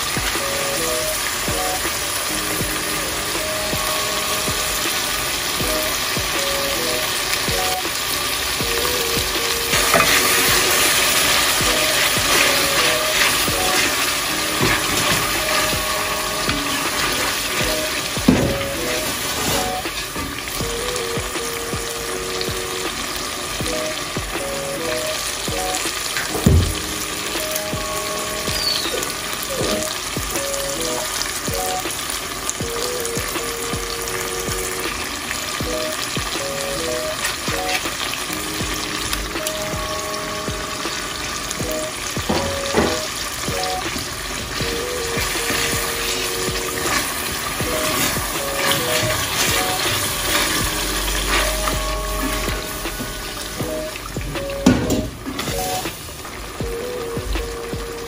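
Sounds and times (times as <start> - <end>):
soft background music: 0.0 - 58.0
stew sizzling in a pot: 0.0 - 58.0.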